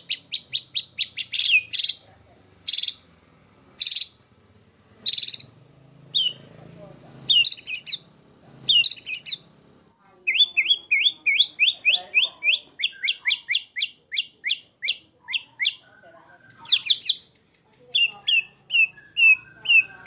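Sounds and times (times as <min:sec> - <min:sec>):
bird harsh rattling calls: 0:00.0 - 0:02.0, 0:02.6 - 0:03.1, 0:03.8 - 0:04.2, 0:05.0 - 0:06.5, 0:07.3 - 0:08.1, 0:08.7 - 0:09.5
bird sharp whistled notes: 0:18.0 - 0:20.0.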